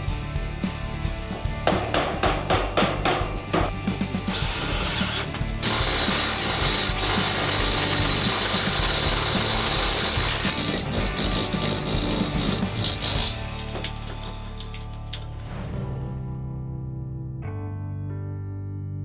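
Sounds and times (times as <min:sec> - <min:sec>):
background music: 0:00.0 - 0:18.4
power drill whining: 0:03.7 - 0:15.7.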